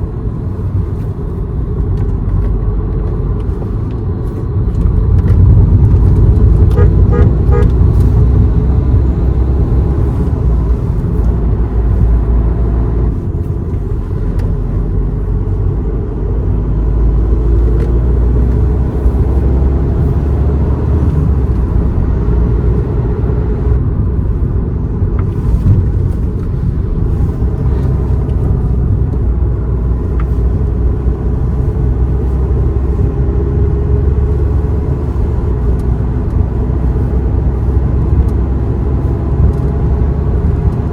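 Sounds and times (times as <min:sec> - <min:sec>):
car engine and road noise: 0:00.0 - 0:40.9
car horn toot: 0:06.6 - 0:08.1.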